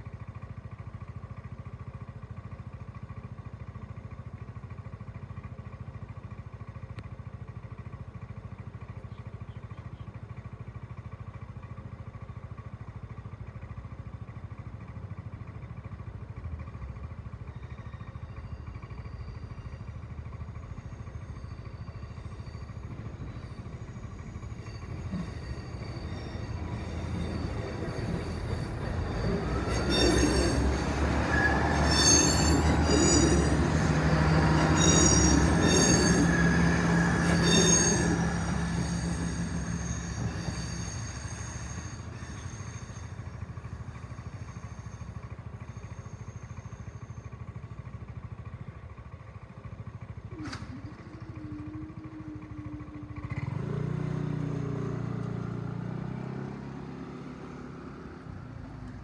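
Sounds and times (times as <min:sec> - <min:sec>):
motor scooter idling: 0:00.0 - 0:28.7, 0:43.1 - 0:55.6
passenger train approaching: 0:04.7 - 0:59.0
train wheels clicking on rail joints: 0:17.8 - 0:47.3, 0:50.0 - 0:51.2.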